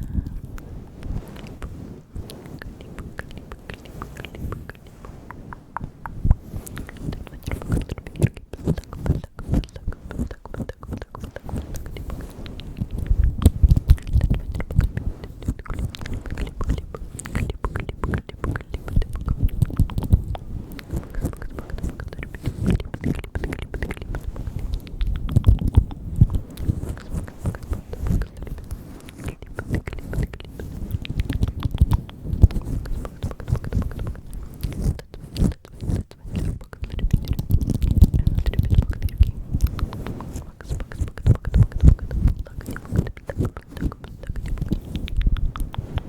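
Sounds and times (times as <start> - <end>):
wet mouth clicks and lip smacks: 0.1 - 46.0
soft low thumps: 4.2 - 28.8.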